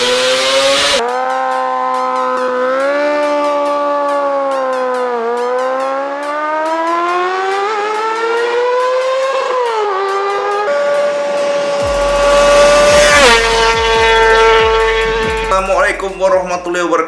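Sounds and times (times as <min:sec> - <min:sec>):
motorcycle engine at high revs: 0:00.0 - 0:01.0, 0:07.2 - 0:15.5.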